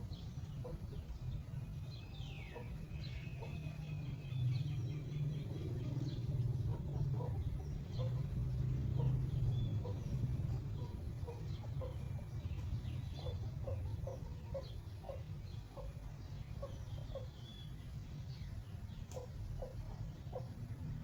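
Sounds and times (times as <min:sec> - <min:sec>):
steady low rumble: 0:00.0 - 0:21.0
chickens clucking: 0:06.7 - 0:17.4.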